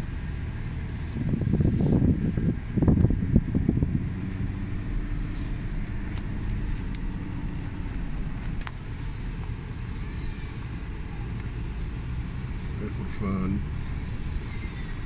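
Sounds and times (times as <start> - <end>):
car engine humming in cabin: 0.0 - 15.0.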